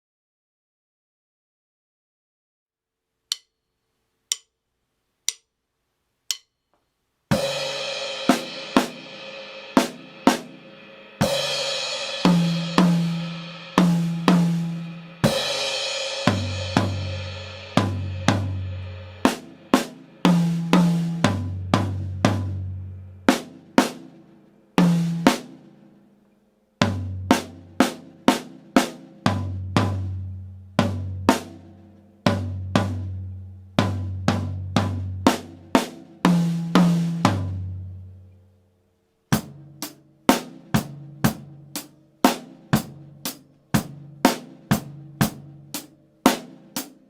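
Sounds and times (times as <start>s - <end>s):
count-in clicks: 3.3s - 4.6s, 5.2s - 5.5s, 6.2s - 6.9s.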